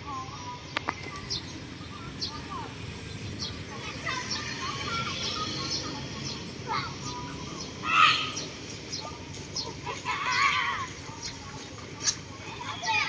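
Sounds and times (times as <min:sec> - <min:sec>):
street ambience hum: 0:00.0 - 0:13.0
birds chirping: 0:00.1 - 0:13.0
loud bird call: 0:04.0 - 0:08.6.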